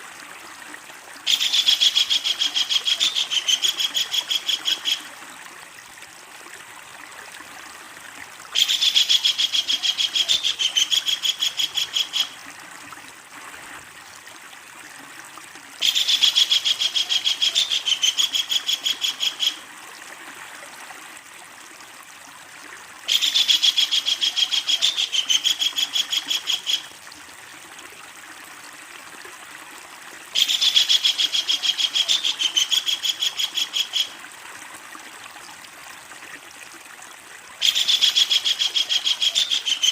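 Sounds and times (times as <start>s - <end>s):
kingfisher chattering call: 1.3s - 5.0s, 8.6s - 12.3s, 15.8s - 19.6s, 30.4s - 34.1s, 37.6s - 39.9s.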